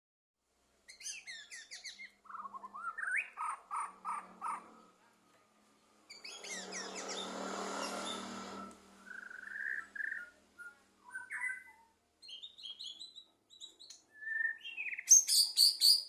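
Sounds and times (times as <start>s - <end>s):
songbird whistling rapid notes: 6.1s - 13.1s, 14.2s - 16.0s.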